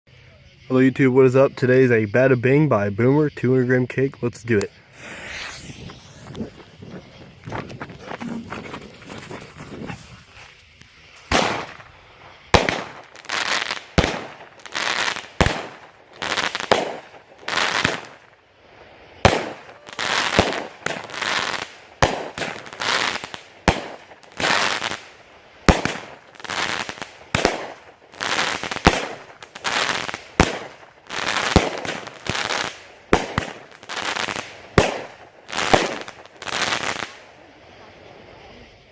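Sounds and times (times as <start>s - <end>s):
firework bursts: 3.6s - 38.9s
firework launch thumps: 4.9s - 10.1s.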